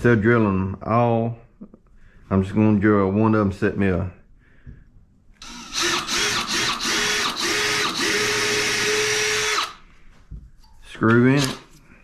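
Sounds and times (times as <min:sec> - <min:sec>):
power drill boring into wood: 0:05.4 - 0:09.8, 0:11.4 - 0:11.6.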